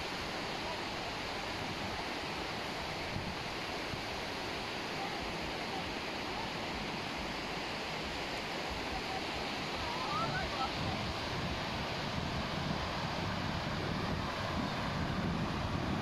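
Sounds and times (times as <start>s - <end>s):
surf washing onto beach: 0.0s - 16.0s.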